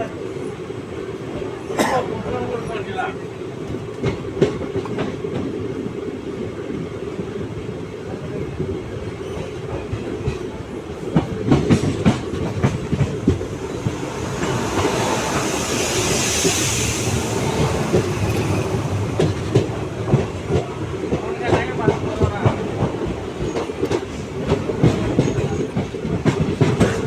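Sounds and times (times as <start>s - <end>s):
train rumbling on track: 0.0s - 27.0s
rushing hiss: 11.8s - 21.4s.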